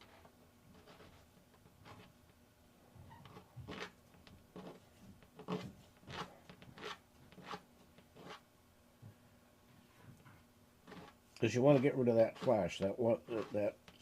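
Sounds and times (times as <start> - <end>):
metal part rasping on file: 5.4 - 7.6, 8.2 - 8.4, 10.9 - 14.0.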